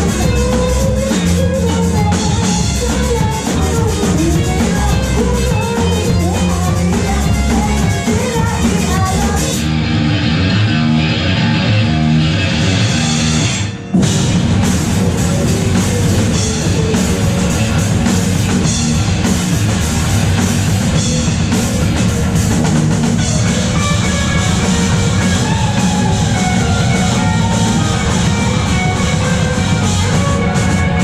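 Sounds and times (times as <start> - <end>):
distorted electric guitars: 0.0 - 31.0
drum kit: 0.0 - 31.0.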